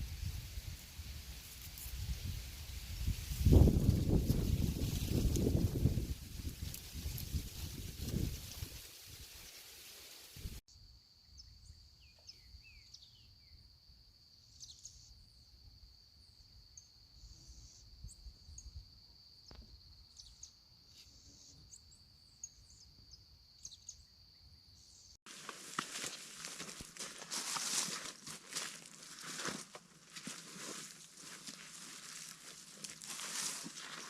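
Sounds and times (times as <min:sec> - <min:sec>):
bird chirps: 0:11.2 - 0:13.6, 0:20.1 - 0:25.2.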